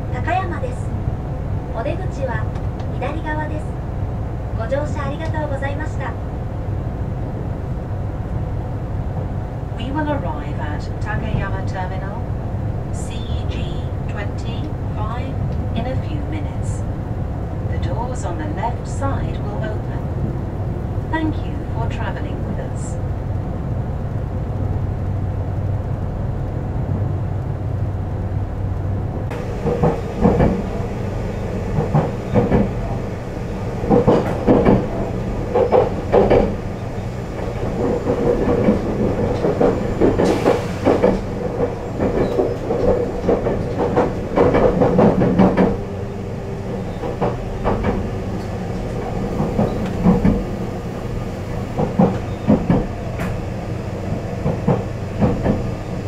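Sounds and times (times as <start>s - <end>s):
train running low hum: 0.0s - 56.0s
wheels clattering over rails: 29.2s - 56.0s.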